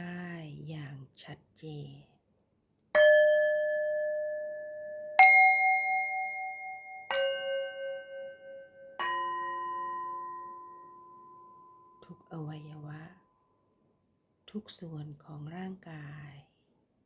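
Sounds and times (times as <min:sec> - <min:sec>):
singing bowls ringing: 0:03.0 - 0:12.1.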